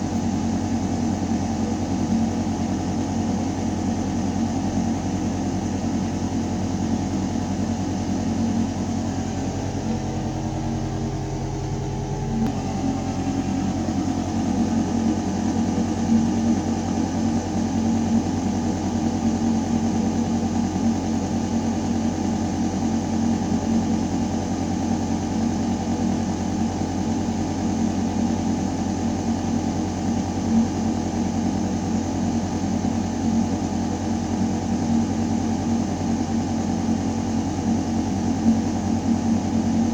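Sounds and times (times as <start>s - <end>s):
ventilation system humming: 0.0s - 39.9s.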